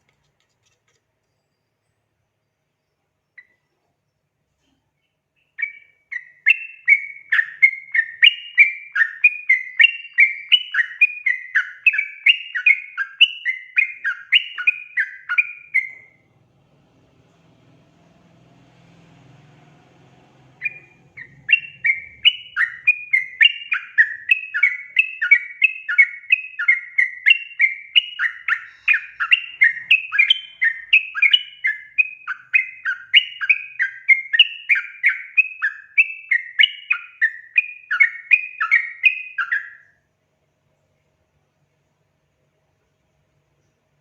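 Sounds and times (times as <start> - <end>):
bulbul chattering song: 17.3 - 39.8.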